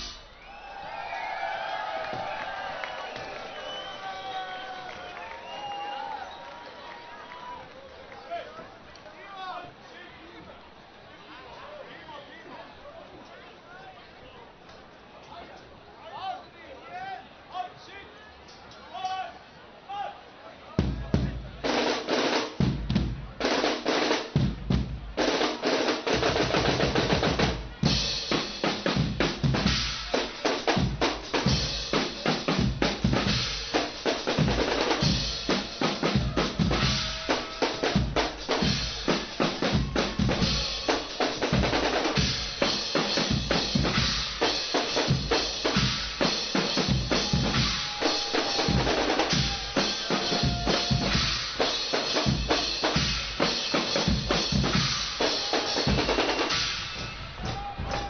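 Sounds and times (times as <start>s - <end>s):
bass and snare drums playing: 0.0s - 0.4s, 20.8s - 58.0s
brighter percussion layer: 20.8s - 58.0s.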